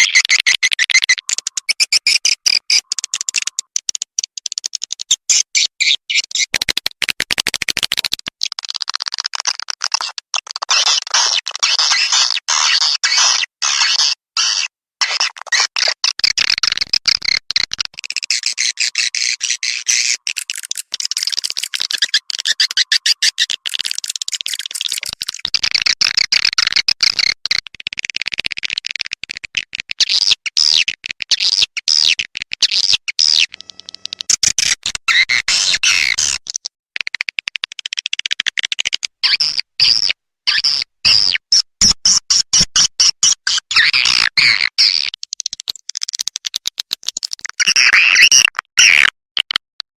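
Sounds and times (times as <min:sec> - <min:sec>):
swiftlet chirping and clicks: 0:00.0 - 0:05.3, 0:16.4 - 0:27.6.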